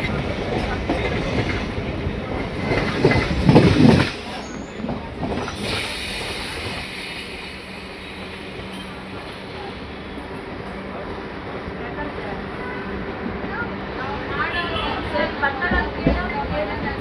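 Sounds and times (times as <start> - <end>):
train rolling rumble: 0.0 - 17.0
train wheels clattering: 0.1 - 10.8.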